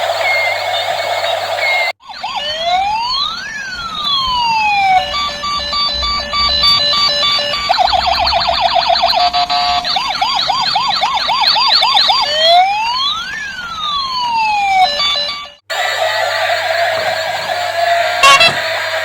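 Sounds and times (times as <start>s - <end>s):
electronic siren wailing: 0.0s - 19.0s
steady electronic tone: 5.0s - 9.8s.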